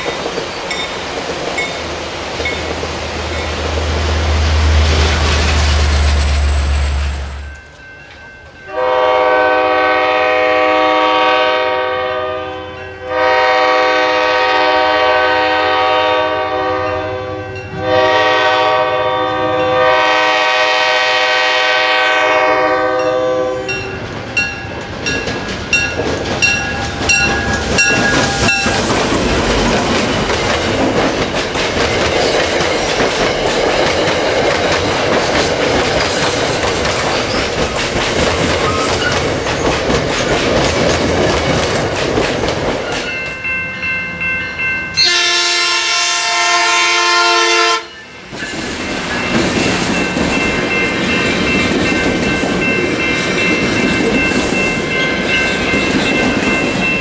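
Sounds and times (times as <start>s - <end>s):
rush of rail cars rolling past: 0.0s - 47.2s, 47.8s - 57.0s
train air horn blasts: 8.7s - 23.8s, 45.0s - 48.0s
wheels clicking over rail joints: 24.0s - 43.4s.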